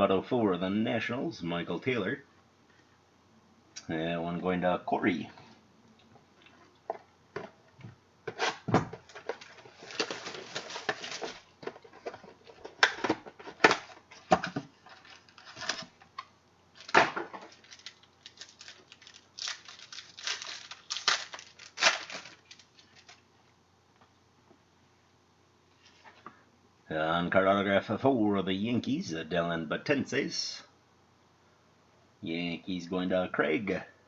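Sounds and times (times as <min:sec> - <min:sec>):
wrappers tearing and crinkling: 0:08.4 - 0:11.5, 0:14.9 - 0:16.0, 0:16.7 - 0:23.2.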